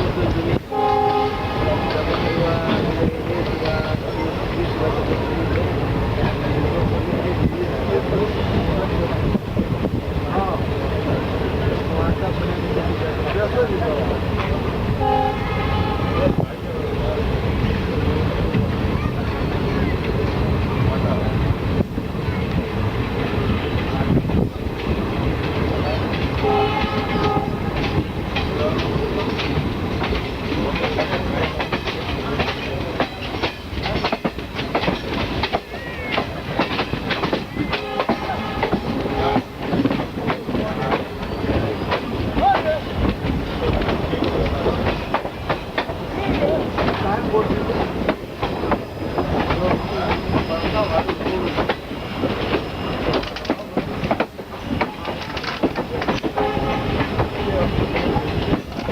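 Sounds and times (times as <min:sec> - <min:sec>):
train wheels clattering over rail joints: 0:23.1 - 0:58.9.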